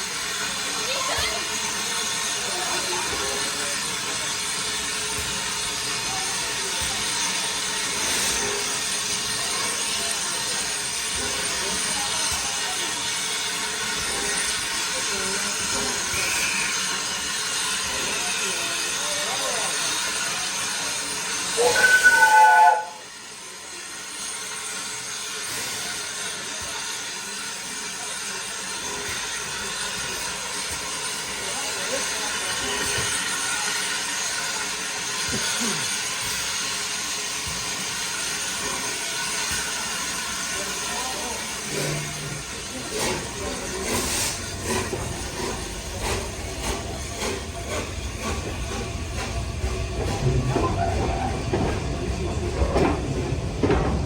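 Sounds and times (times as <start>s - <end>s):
steam hissing: 0.0s - 54.0s
steam locomotive whistle blast: 21.5s - 23.1s.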